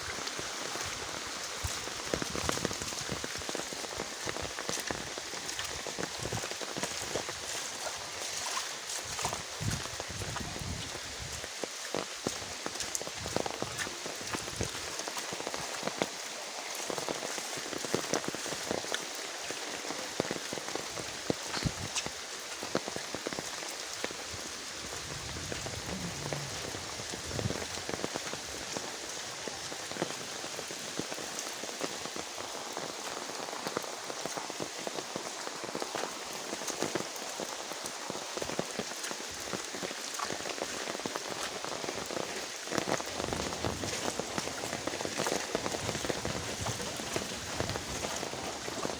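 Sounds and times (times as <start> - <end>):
steady rain falling: 0.0 - 48.9
close raindrop hits ticking: 17.9 - 48.9.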